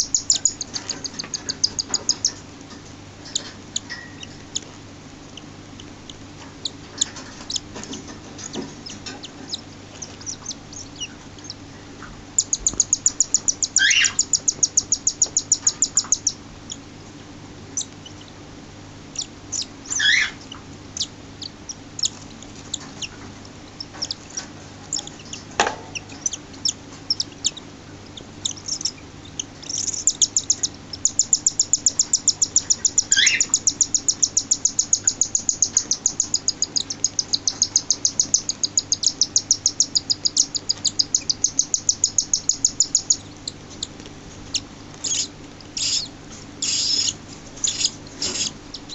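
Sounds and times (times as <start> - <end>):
chick high-pitched peeping: 0.0 - 2.4, 3.2 - 4.7, 5.3 - 16.9, 17.7 - 18.4, 19.1 - 48.9
single bird calls: 12.4 - 16.4, 19.2 - 20.4, 28.5 - 43.3, 45.0 - 48.9.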